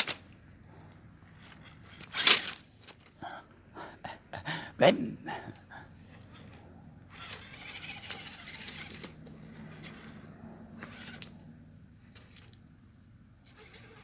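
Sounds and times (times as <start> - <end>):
toy truck motor whirring: 0.0 - 3.2, 5.9 - 14.0
truck clicking on rock: 0.0 - 3.2.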